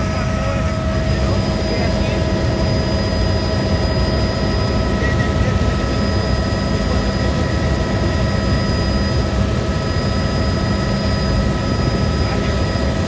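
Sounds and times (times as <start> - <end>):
helicopter rotor and turbine drone: 0.0 - 13.0.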